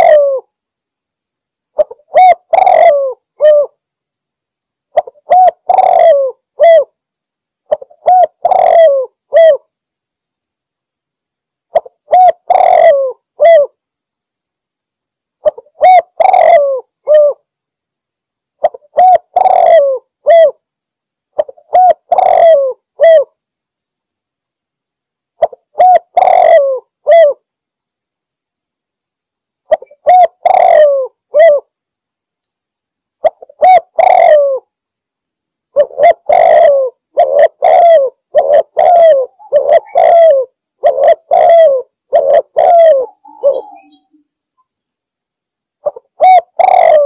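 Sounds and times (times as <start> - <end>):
dove cooing: 0.0 - 0.5, 1.8 - 3.8, 5.0 - 6.9, 7.7 - 9.7, 11.7 - 13.8, 15.4 - 17.4, 18.6 - 20.6, 21.4 - 23.3, 25.4 - 27.4, 29.7 - 31.7, 33.2 - 34.7, 35.8 - 44.2, 45.8 - 47.0.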